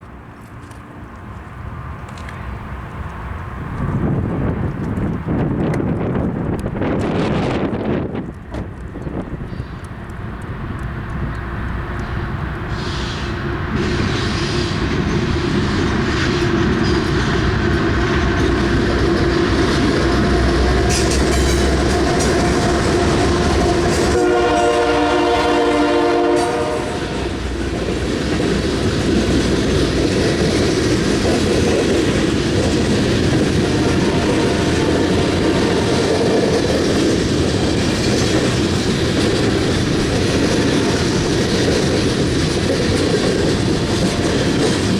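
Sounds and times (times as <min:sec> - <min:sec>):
locomotive rumble: 0:00.0 - 0:44.9
train cars rolling over rails: 0:00.3 - 0:44.9
locomotive horn: 0:20.6 - 0:27.4.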